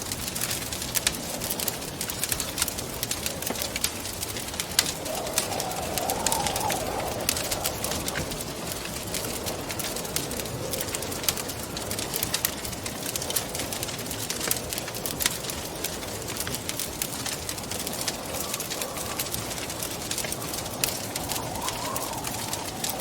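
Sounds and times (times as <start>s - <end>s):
wood fire crackling: 0.0s - 23.0s
wind moaning: 2.8s - 11.9s, 16.8s - 23.0s.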